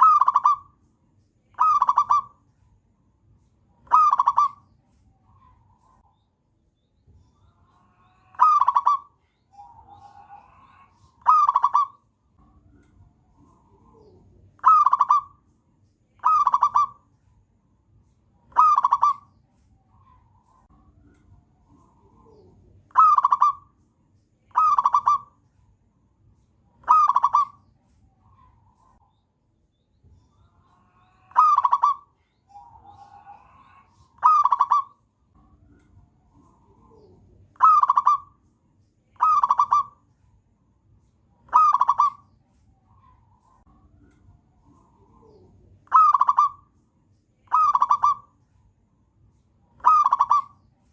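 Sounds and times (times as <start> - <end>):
dove staccato cooing: 0.0 - 0.8, 1.6 - 2.4, 3.8 - 4.6, 8.3 - 12.0, 13.3 - 15.4, 16.2 - 17.1, 18.5 - 19.4, 21.7 - 23.8, 24.5 - 25.4, 26.8 - 27.6, 30.4 - 35.0, 36.2 - 38.4, 39.2 - 40.1, 41.4 - 42.3, 44.6 - 46.8, 47.5 - 48.4, 49.8 - 50.6.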